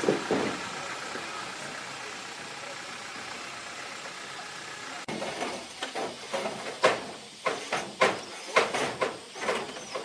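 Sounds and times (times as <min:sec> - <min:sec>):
sharp knocks and clatter: 0:00.0 - 0:00.6, 0:05.1 - 0:10.0.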